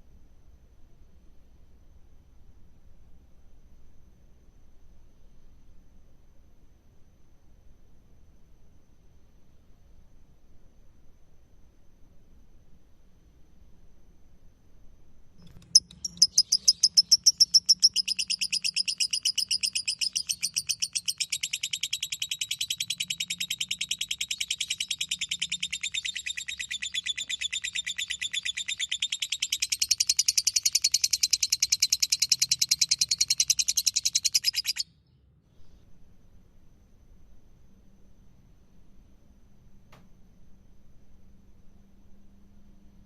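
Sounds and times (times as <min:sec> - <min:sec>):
bird chattering trill: 0:15.5 - 0:34.8.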